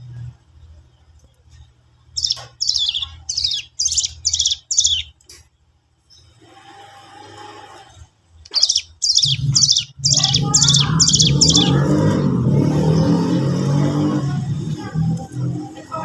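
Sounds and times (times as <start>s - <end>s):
high falling bird notes: 2.2s - 5.2s, 8.5s - 13.0s.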